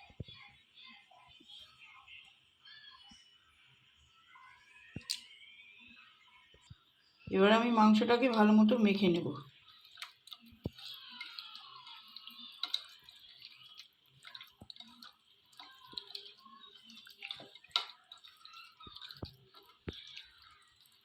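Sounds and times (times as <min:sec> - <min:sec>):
hands squelching raw chicken: 0:09.6 - 0:21.0.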